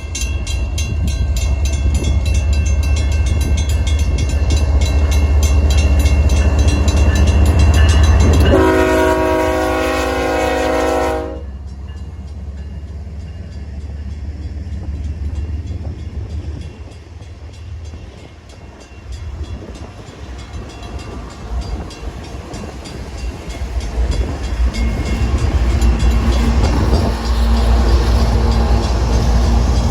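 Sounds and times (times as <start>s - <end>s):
freight train rumbling past: 0.0s - 29.9s
train horn blast: 8.2s - 11.6s.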